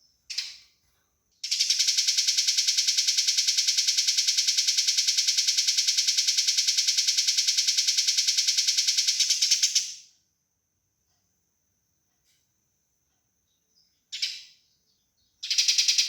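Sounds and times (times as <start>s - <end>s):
sparrow chattering: 15.4s - 16.0s.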